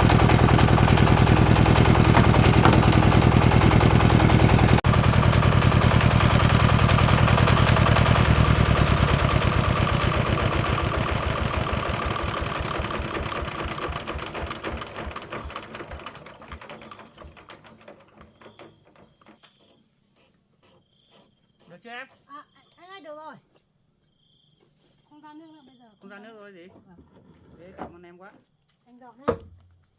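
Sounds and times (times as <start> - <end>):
chainsaw engine running: 0.0 - 18.4.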